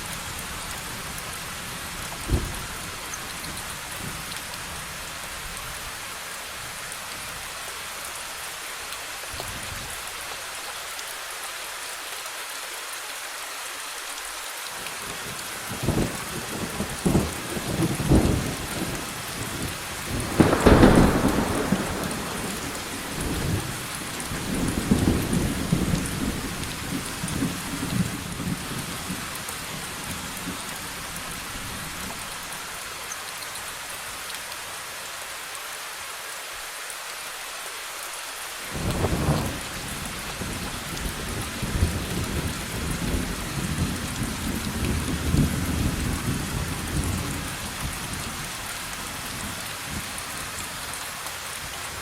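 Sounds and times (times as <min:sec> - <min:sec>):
steady rain hissing: 0:00.0 - 0:52.0
rolling thunder: 0:15.9 - 0:29.2
loud thunderclap: 0:20.1 - 0:28.6.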